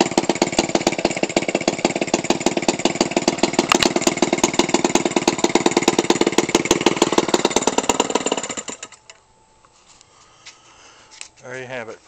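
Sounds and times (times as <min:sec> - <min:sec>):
small engine idling: 0:00.0 - 0:09.2.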